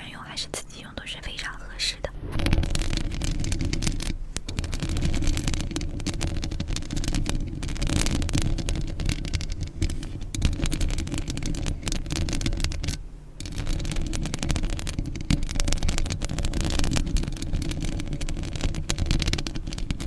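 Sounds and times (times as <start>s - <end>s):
low rumble: 0.0s - 7.6s
stones grinding together: 2.2s - 20.0s.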